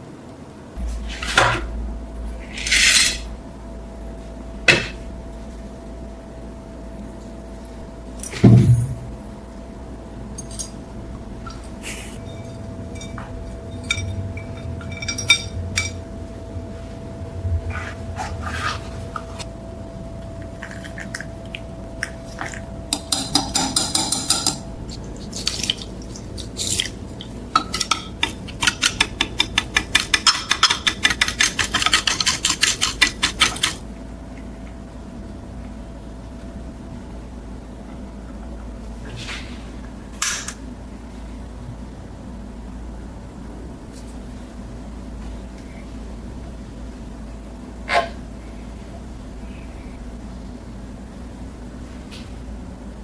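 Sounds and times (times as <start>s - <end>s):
metal parts clinking and knocking: 10.4s - 10.8s, 12.4s - 16.0s.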